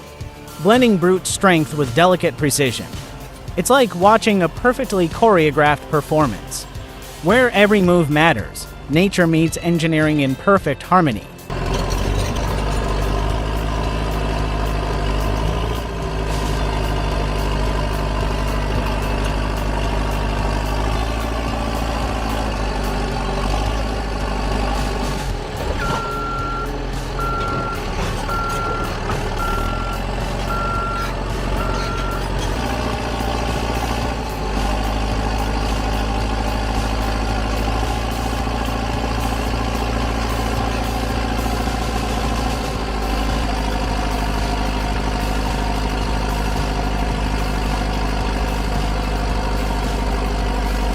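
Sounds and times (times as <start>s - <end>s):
heavy diesel engine running: 0.0s - 50.9s
reversing alarm beeping: 25.7s - 32.5s.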